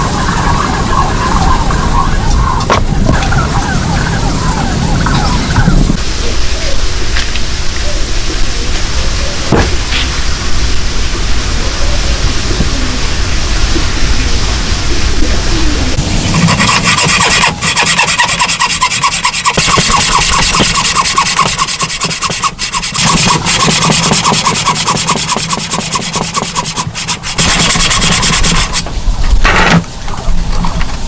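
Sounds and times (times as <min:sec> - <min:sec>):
hand tool rasping on wood: 0:16.2 - 0:28.8.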